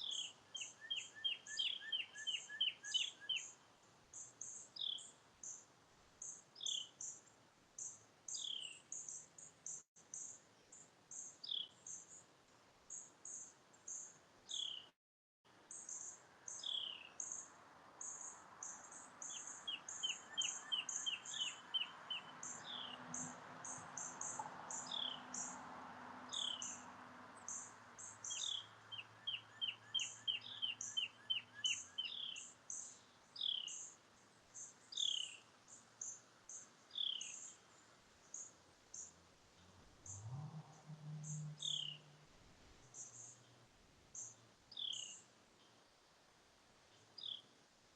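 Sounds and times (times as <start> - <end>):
bird trill: 0.0 - 3.5, 19.2 - 23.0, 27.5 - 32.5, 41.2 - 42.1
passing vehicle engine: 22.2 - 29.1, 39.1 - 43.7.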